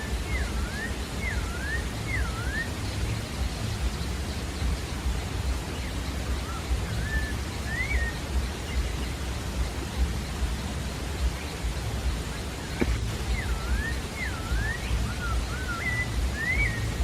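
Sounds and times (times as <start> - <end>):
thrush whistling: 0.0 - 2.8, 6.4 - 8.2, 12.6 - 17.0
steady hiss: 0.0 - 17.0.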